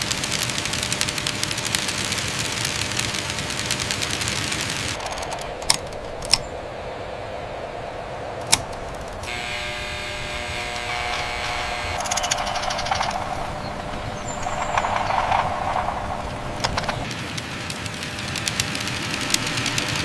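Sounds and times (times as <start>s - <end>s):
fast rattling clicks: 0.0s - 6.5s, 10.3s - 20.0s
machine whirring with hum: 0.0s - 20.0s
sharp single clicks: 8.4s - 9.4s.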